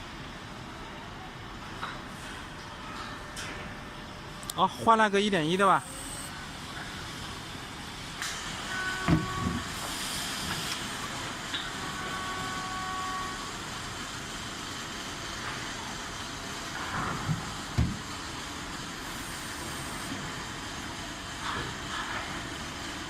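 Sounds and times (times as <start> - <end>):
faint motor whine: 0.0 - 23.0
electric truck hiss: 8.6 - 14.6, 18.3 - 20.3.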